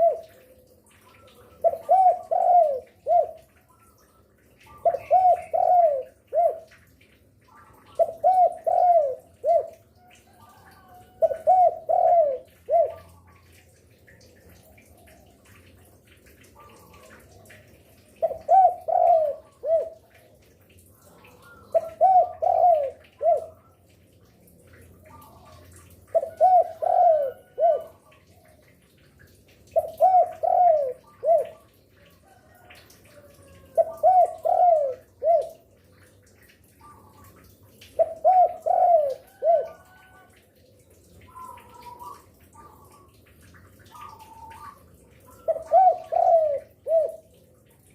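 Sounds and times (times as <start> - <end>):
dove cooing: 0.0 - 3.6, 4.7 - 6.8, 7.4 - 13.5, 16.5 - 20.5, 21.1 - 23.9, 25.1 - 28.6, 29.7 - 36.1, 36.8 - 40.4, 43.8 - 47.4.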